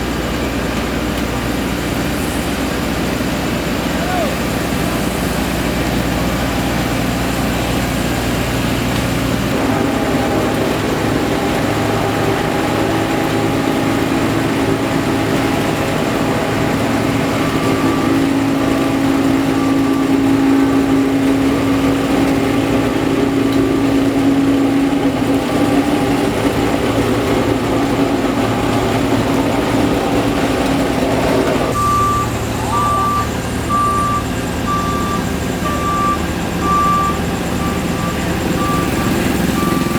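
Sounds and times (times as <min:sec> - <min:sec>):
heavy paving machinery engine drone: 0:00.0 - 0:39.9
reversing alarm beeping: 0:09.5 - 0:39.9.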